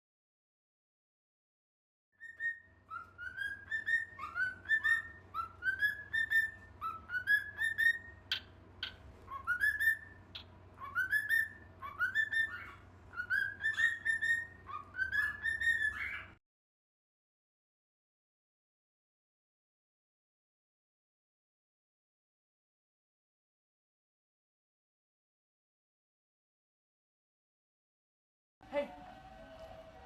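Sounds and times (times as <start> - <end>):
parrot whistling: 2.2 - 16.4.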